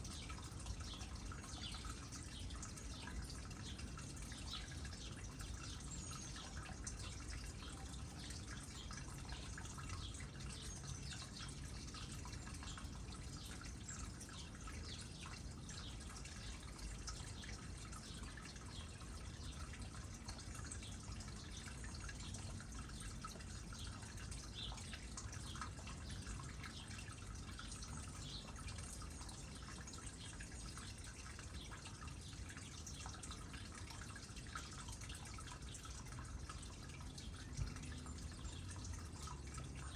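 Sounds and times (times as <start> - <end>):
water dripping into pond: 0.0 - 39.9.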